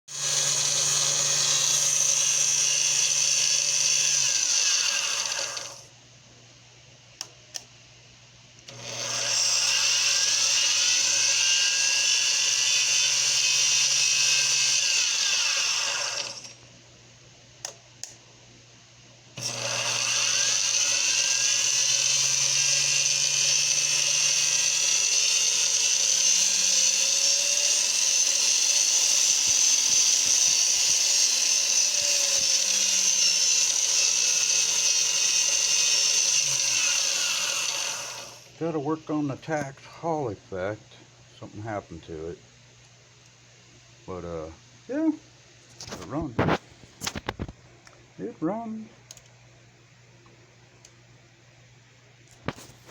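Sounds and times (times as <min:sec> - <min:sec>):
lathe high whine: 0:00.1 - 0:05.8, 0:08.7 - 0:16.6, 0:19.4 - 0:40.2.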